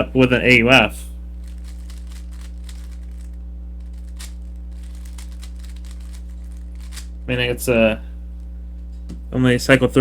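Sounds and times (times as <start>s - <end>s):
low electrical hum: 0.0s - 10.0s
puzzle cube clicking: 1.5s - 3.3s, 3.9s - 7.1s.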